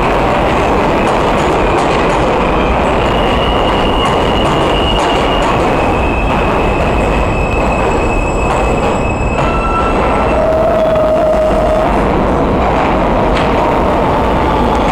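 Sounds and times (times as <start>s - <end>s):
train wheels rumbling on track: 0.0s - 14.9s
high-pitched wheel squeal: 2.6s - 12.0s.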